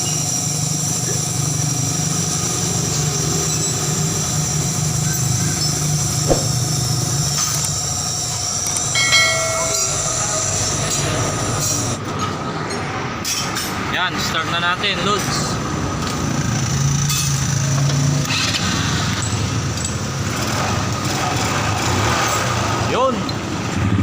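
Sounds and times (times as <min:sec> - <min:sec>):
sharp knock: 0:06.3 - 0:06.7.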